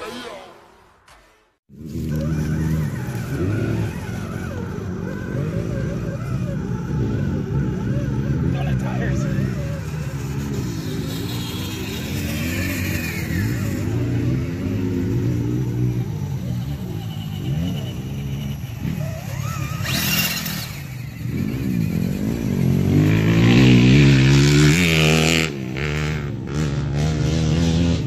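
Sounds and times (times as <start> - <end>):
small electric motors whining: 1.7 - 23.2.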